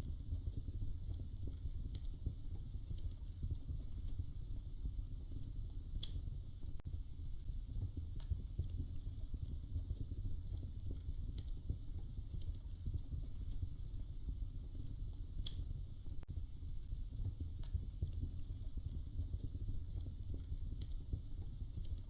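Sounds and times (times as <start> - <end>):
fire crackling and popping: 0.0 - 22.0
low rumble of flames: 0.0 - 22.0.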